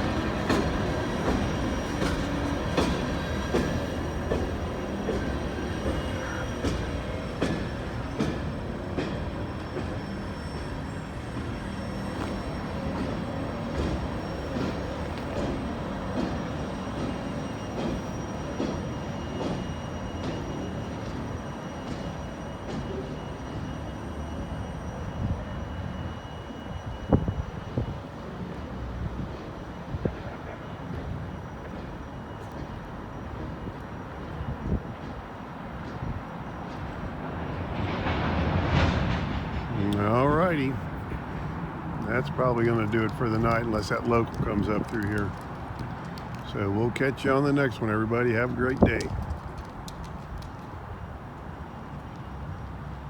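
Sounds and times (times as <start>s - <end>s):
wheels clacking over rail joints: 0.0s - 23.7s, 35.1s - 52.9s
faint high wheel squeal: 0.0s - 45.8s
freight train rumbling past: 0.0s - 53.0s.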